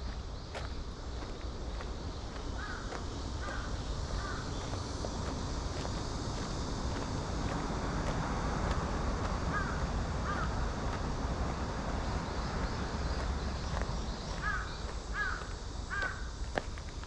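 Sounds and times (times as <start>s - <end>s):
outdoor background hiss: 0.0s - 17.0s
crow cawing: 2.6s - 4.5s, 9.5s - 10.6s, 14.4s - 16.3s.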